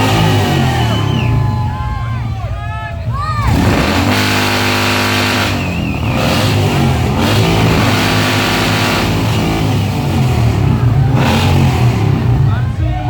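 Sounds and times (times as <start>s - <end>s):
car engine revving: 0.0s - 2.4s, 3.0s - 13.0s.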